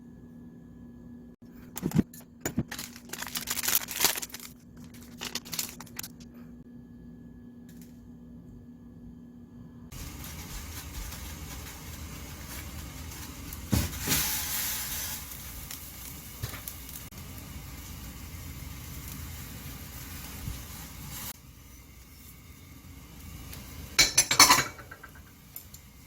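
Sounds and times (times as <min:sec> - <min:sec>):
water boiling in pot: 0:09.9 - 0:26.0.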